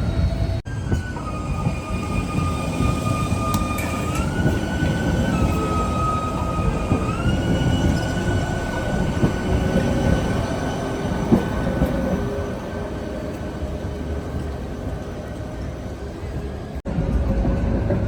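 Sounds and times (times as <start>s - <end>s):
tram high-pitched whine: 0.0s - 18.0s
tram rumbling on track: 0.0s - 18.0s.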